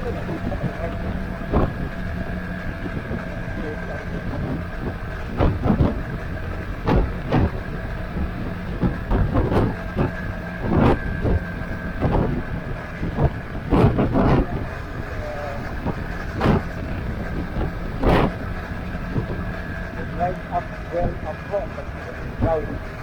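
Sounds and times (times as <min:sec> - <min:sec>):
motorcycle running: 0:00.0 - 0:23.0
road and wind noise: 0:00.0 - 0:23.0
sharp knocks on microphone: 0:06.8 - 0:07.6.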